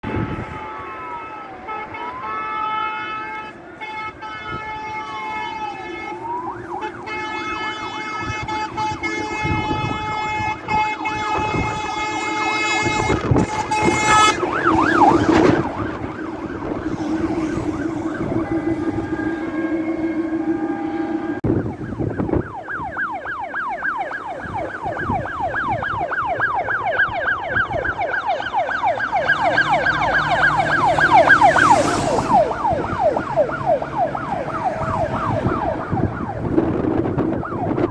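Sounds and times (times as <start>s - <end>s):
air horns blaring: 0.0s - 22.6s, 28.5s - 37.8s
diesel trucks droning: 0.0s - 37.9s
wailing siren: 0.0s - 37.9s
fast yelping siren: 8.1s - 37.9s.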